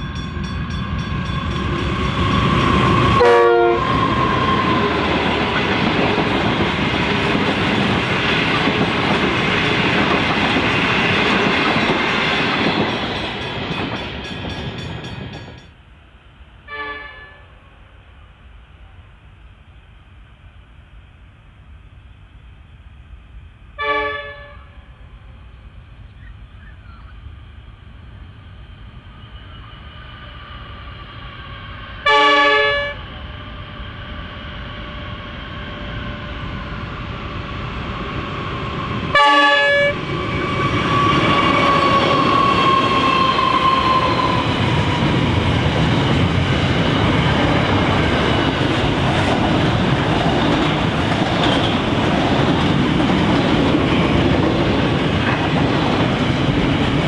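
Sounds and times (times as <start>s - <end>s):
diesel locomotive engine passing: 0.0s - 57.0s
locomotive horn blasts: 3.2s - 4.2s, 16.7s - 17.6s, 23.8s - 24.9s, 32.0s - 33.1s, 39.1s - 40.0s.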